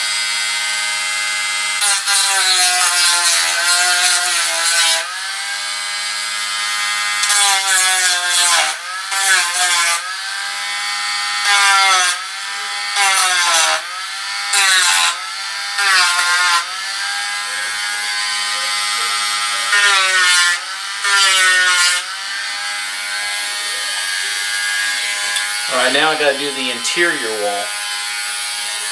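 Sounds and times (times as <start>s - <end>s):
sanding wheel rasping on wood: 22.8s - 27.8s.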